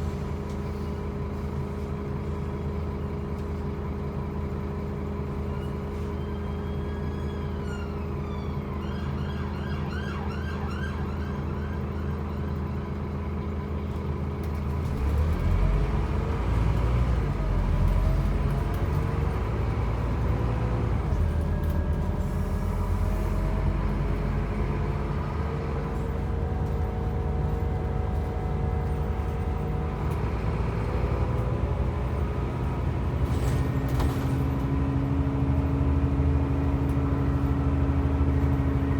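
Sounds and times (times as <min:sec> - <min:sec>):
bus diesel engine idling: 0:00.0 - 0:38.9
siren wailing and yelping: 0:06.4 - 0:12.9.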